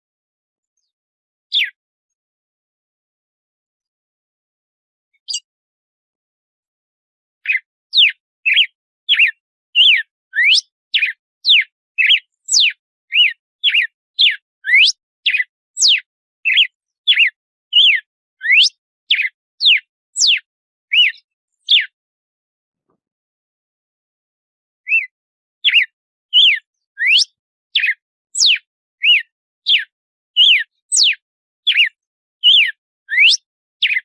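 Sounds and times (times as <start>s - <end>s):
bird whistling clear notes: 8.0s - 15.4s, 16.5s - 21.1s, 24.9s - 25.8s, 26.4s - 29.8s, 30.4s - 34.0s.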